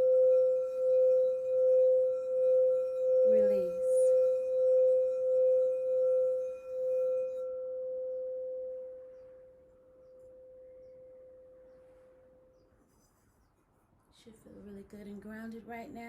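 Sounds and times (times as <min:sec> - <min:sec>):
singing bowl ringing: 0:00.0 - 0:11.8.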